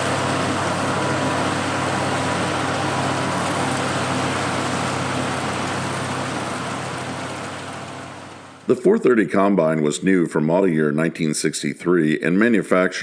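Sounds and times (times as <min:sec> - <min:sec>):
combine harvester engine droning: 0:00.0 - 0:09.2.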